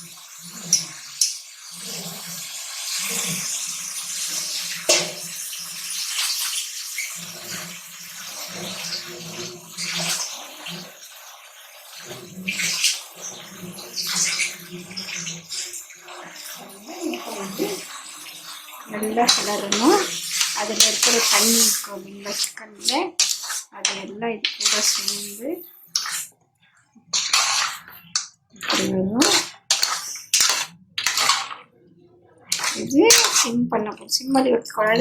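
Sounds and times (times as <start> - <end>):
chicken sizzling in oil: 0.0 - 26.3, 27.2 - 31.6, 32.5 - 33.5
spoon scraping pan: 12.0 - 26.4, 27.0 - 31.8, 32.4 - 34.2.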